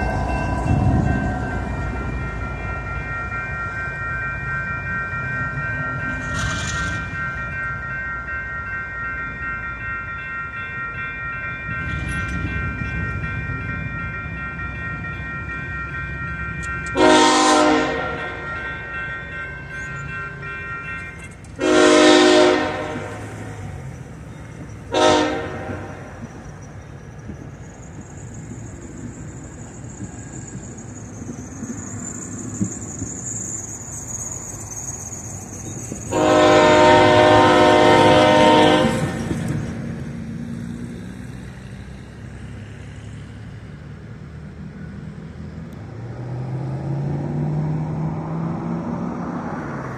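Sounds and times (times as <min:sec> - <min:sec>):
diesel engines rumbling: 0:13.6 - 0:49.9
locomotive air horn blasts: 0:16.9 - 0:18.4, 0:21.6 - 0:23.2, 0:24.9 - 0:26.0, 0:36.1 - 0:39.2.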